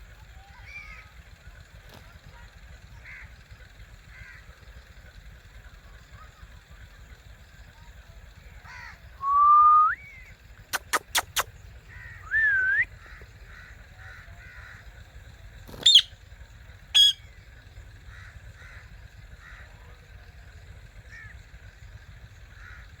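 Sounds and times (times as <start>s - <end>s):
parakeet gliding call: 8.7s - 15.1s, 15.7s - 19.8s
faint short chirps: 10.7s - 11.6s, 12.2s - 12.9s
parakeet screeches: 15.8s - 16.1s, 17.0s - 17.2s.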